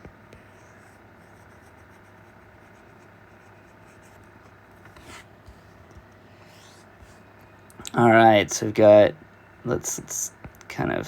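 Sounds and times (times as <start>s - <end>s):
drawing strokes scratching: 0.4s - 5.8s, 6.4s - 7.2s.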